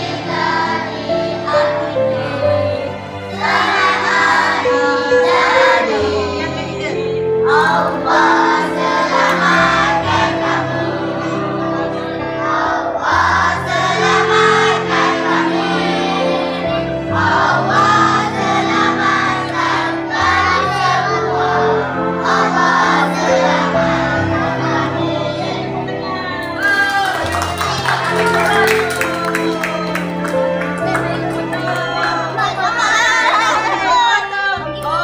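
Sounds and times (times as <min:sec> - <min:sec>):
bass and chord backing: 0:00.0 - 0:35.0
several voices singing: 0:00.0 - 0:35.0.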